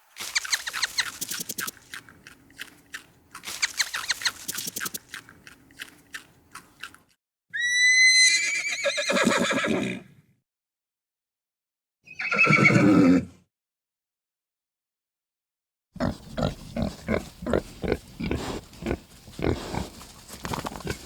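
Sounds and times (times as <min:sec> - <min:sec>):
rapid clicking pulses: 0:00.4 - 0:01.9, 0:03.6 - 0:05.1
horse whinnying: 0:07.5 - 0:10.1, 0:12.1 - 0:13.4.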